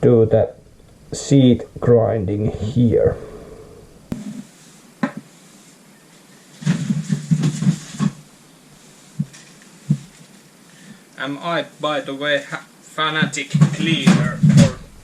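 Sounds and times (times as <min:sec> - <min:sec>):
rapid clattering and rubbing: 0:06.5 - 0:10.4, 0:13.2 - 0:15.0.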